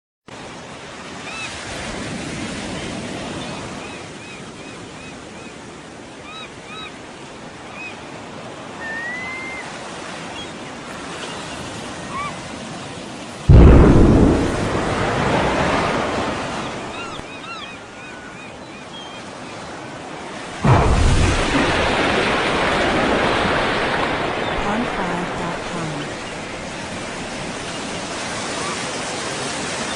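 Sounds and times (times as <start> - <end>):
surf and sea noise: 0.3 - 29.9
loud explosion boom: 13.5 - 17.2, 20.6 - 25.8.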